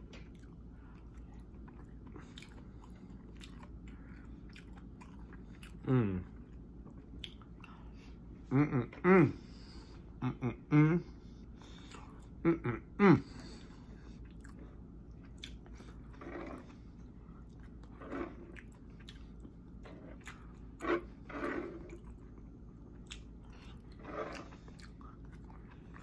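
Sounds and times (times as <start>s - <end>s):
man chewing wet mouth sounds: 0.0s - 8.2s, 13.0s - 26.0s
smacking or slurping: 17.6s - 22.2s, 23.0s - 25.7s.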